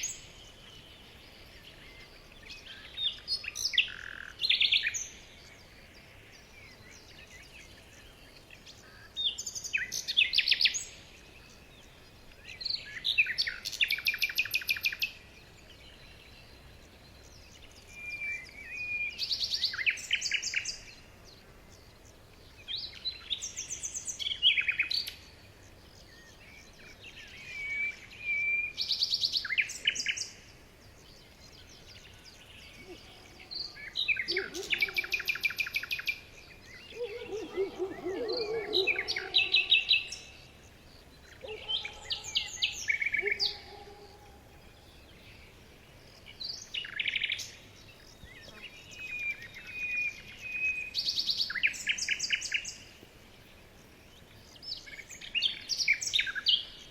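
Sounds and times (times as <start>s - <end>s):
faint steady hiss: 0.0s - 56.9s
small birds chirping: 0.0s - 56.9s.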